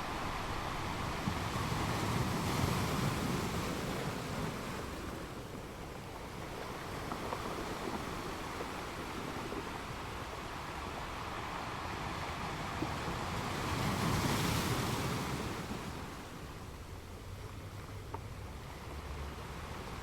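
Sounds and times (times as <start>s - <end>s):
ocean surf washing in: 0.0s - 17.0s.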